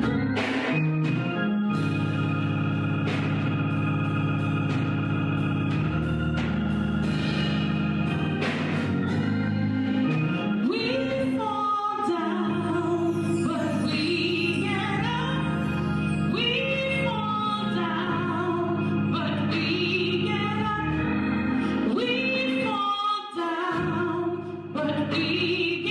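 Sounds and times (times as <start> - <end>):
organ sustained chords: 0.0 - 23.1, 23.7 - 25.9
person singing: 9.9 - 25.9.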